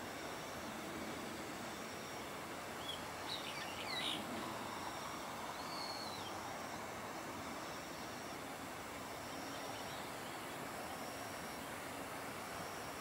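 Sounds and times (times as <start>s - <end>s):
outdoor background hiss: 0.0s - 13.0s
bird whistled calls: 5.6s - 6.3s.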